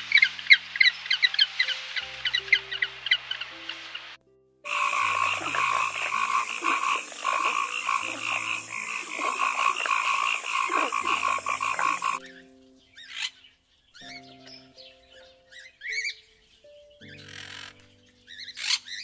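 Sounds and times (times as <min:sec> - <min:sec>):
soft sustained music notes: 0:00.0 - 0:19.0
frogs croaking in chorus: 0:04.7 - 0:12.4, 0:17.1 - 0:19.0.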